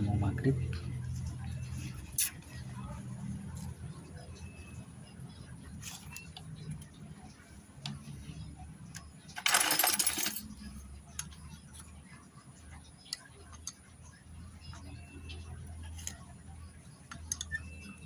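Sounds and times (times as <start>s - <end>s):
metal parts and tools clinking: 9.3s - 10.7s.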